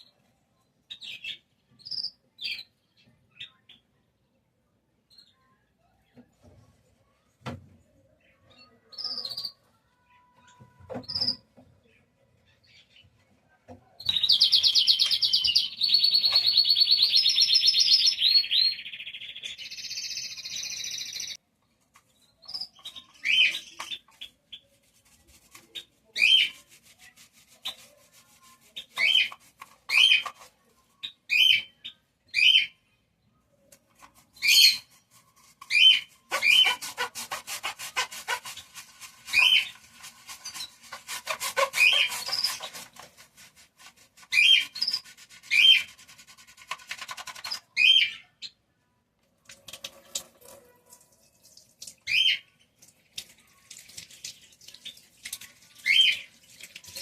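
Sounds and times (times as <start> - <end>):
fast rasping scrape: 24.8 - 30.6, 34.0 - 47.7.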